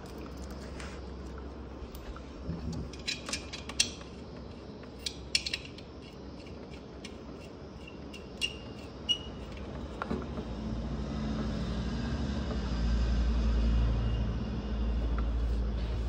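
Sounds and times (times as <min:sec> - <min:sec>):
small metallic clicks and clinks: 0:02.8 - 0:04.1, 0:04.9 - 0:09.7.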